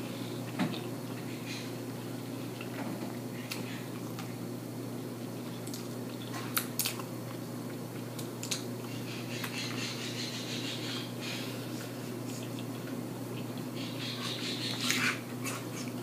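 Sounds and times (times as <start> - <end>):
steady low hum: 0.0 - 16.0
wet chewing and lip smacks: 5.2 - 9.7, 11.8 - 16.0.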